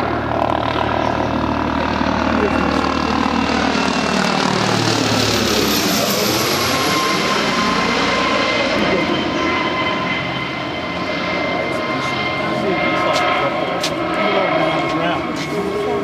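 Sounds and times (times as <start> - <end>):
helicopter rotor hum: 0.0 - 16.0
turbine whine: 0.0 - 16.0.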